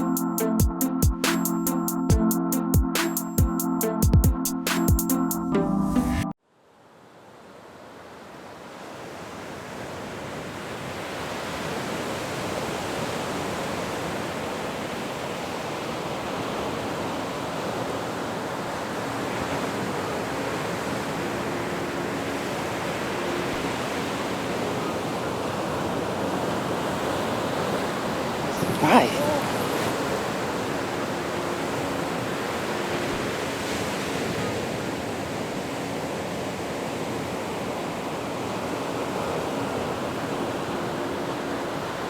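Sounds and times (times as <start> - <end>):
ocean surf rushing: 18.2 - 35.4.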